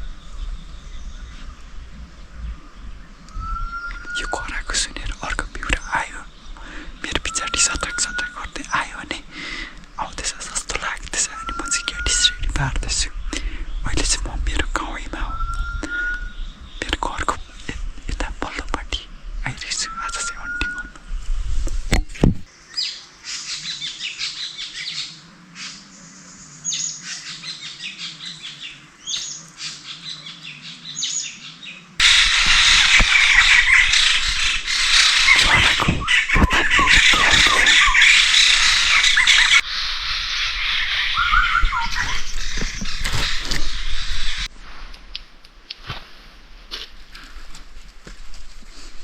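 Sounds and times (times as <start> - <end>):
birds squawking and chirping: 0.0 - 21.9, 22.5 - 44.5.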